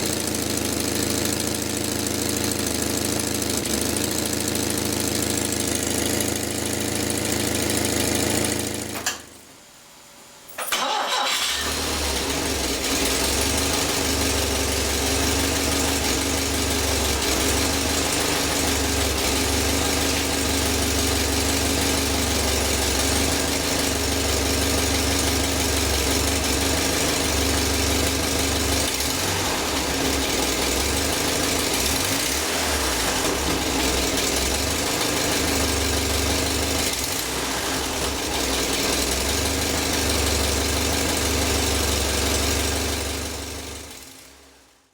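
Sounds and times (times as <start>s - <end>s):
car engine running: 0.0s - 9.0s, 10.8s - 44.6s
engine restarting: 10.6s - 43.5s.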